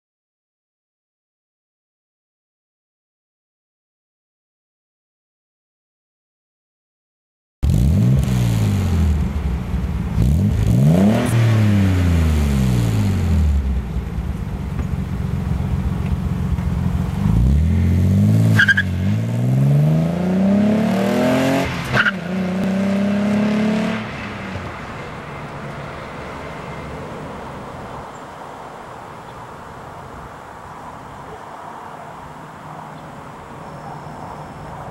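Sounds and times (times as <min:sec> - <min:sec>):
exhaust cracks: 0:07.6 - 0:19.3
car engine idling and revving: 0:07.6 - 0:34.9.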